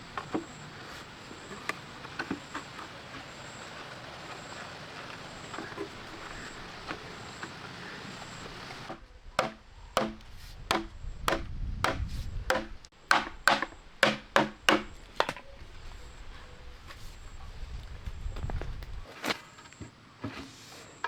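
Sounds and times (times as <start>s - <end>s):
chopping blows on wood: 8.9s - 15.4s.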